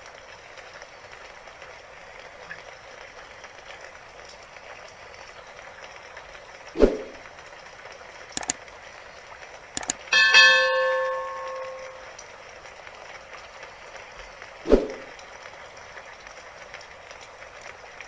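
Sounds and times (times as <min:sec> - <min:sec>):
rain hiss: 0:00.0 - 0:18.0
sharp clicks: 0:08.4 - 0:08.6, 0:09.8 - 0:10.1
bell-like metallic ring: 0:10.1 - 0:12.1.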